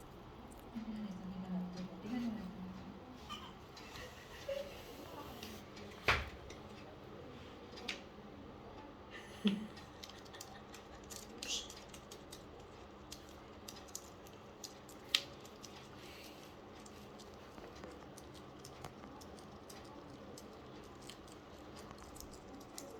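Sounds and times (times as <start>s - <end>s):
low room noise: 0.0s - 22.9s.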